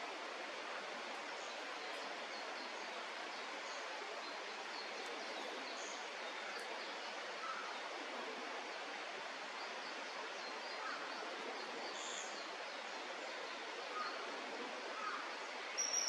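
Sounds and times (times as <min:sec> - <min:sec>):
faint bird chirps: 0:15.0 - 0:16.0.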